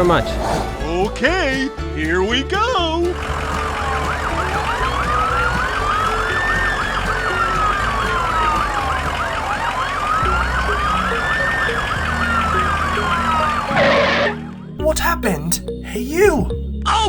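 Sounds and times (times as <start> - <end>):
yelping siren: 0.0 - 1.4, 3.2 - 14.7
wailing siren: 0.0 - 1.7, 3.2 - 14.8
low rumble: 0.0 - 2.0.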